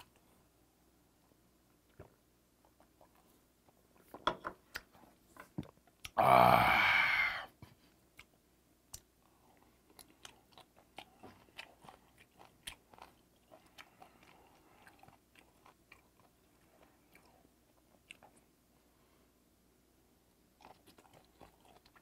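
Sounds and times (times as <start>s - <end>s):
chewing with wet clicks and crunches: 1.8s - 6.2s, 8.1s - 18.6s, 20.3s - 22.0s.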